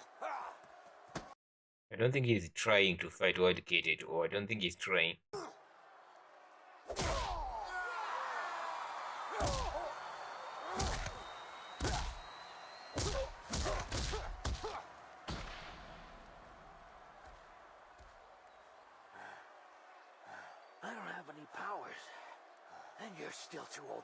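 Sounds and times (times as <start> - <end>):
crowd shouting: 0.0 - 1.4, 5.4 - 24.0
punch and body-hit thuds: 13.0 - 15.6.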